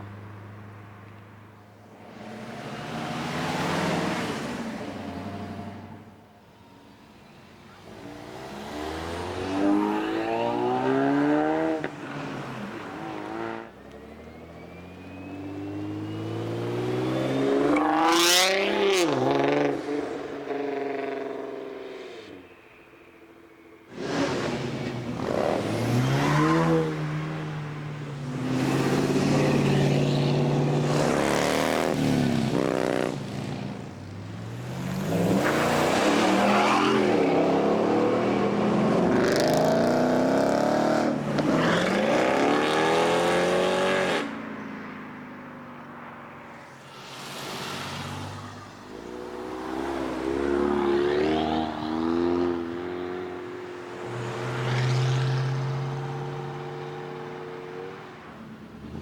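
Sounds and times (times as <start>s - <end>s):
cars accelerating with loud exhausts: 7.7s - 22.5s, 23.8s - 44.4s.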